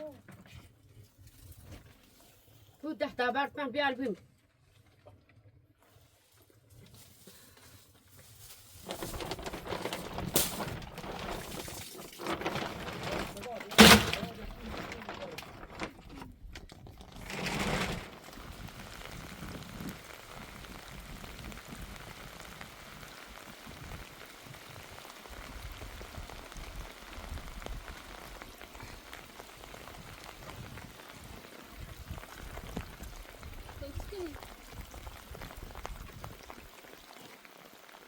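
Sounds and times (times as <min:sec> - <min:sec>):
steady rain falling: 0:07.4 - 0:16.2, 0:17.1 - 0:38.0.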